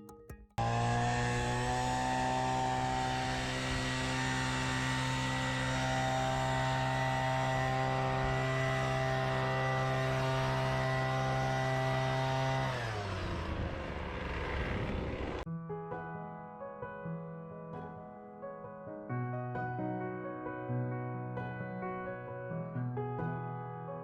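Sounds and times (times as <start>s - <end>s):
small engine running: 0.6s - 15.4s.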